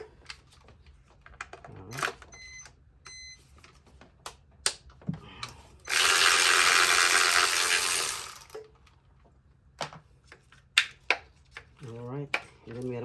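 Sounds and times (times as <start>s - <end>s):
power tool whirring: 5.9s - 8.6s.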